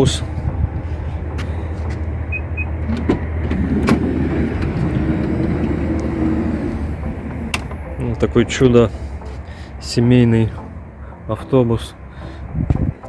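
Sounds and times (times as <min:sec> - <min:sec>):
steady low hum: 0:00.0 - 0:13.0
mechanical whirr: 0:02.2 - 0:08.0.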